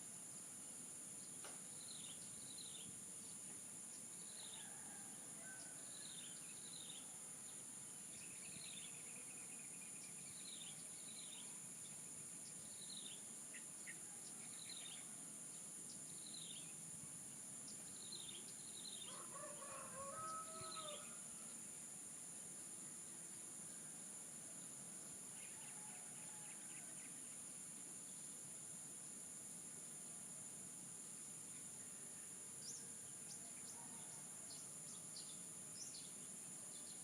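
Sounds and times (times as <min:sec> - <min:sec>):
insect drone: 0:00.0 - 0:37.0
rooster crowing faintly: 0:19.1 - 0:21.4.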